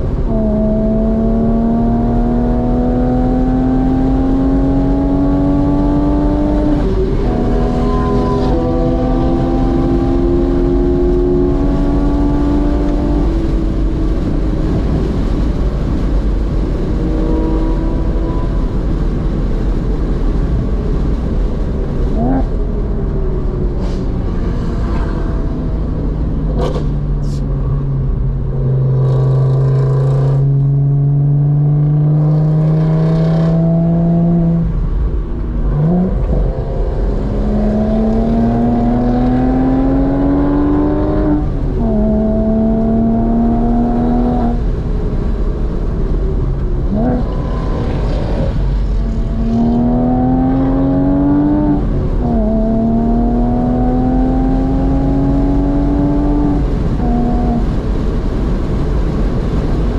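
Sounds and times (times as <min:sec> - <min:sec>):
car engine revving through gears: 0:00.0 - 0:18.9, 0:28.5 - 0:34.9, 0:35.5 - 0:44.8, 0:46.6 - 0:57.9
road and wind noise: 0:00.0 - 0:59.9.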